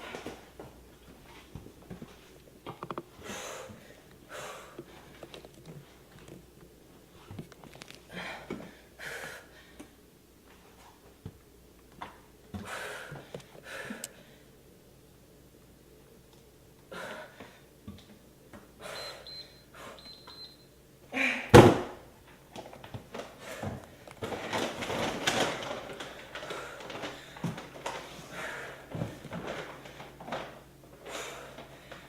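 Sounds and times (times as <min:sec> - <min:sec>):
small knocks and clicks: 0:02.7 - 0:03.1
person breathing hard: 0:03.2 - 0:05.2, 0:08.1 - 0:09.9, 0:12.6 - 0:14.5, 0:26.0 - 0:29.2, 0:31.0 - 0:32.0.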